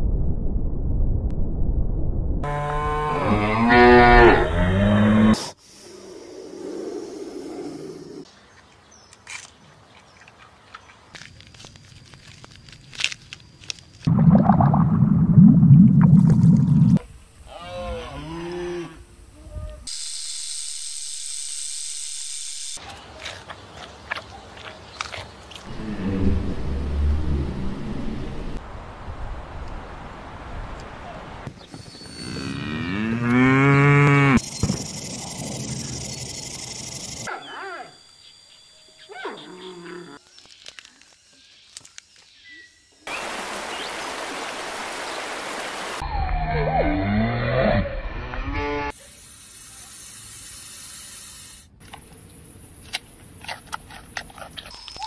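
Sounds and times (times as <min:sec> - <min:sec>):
cattle mooing: 0:02.5 - 0:05.4, 0:32.3 - 0:34.4
loud low rumble: 0:25.7 - 0:28.6
steady hiss: 0:49.0 - 0:52.2.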